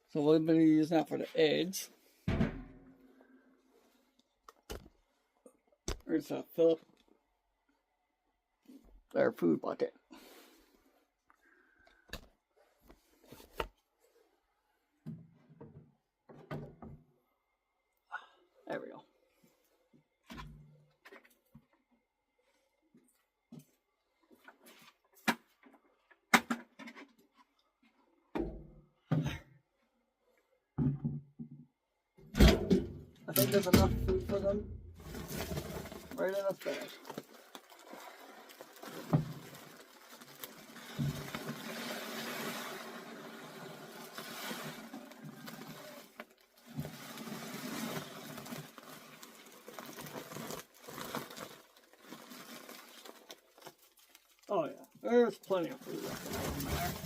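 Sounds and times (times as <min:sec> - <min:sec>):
grain shifting and pattering: 0:33.4 - 0:57.0
bag rustling and crinkling: 0:34.3 - 0:54.5, 0:55.4 - 0:57.0.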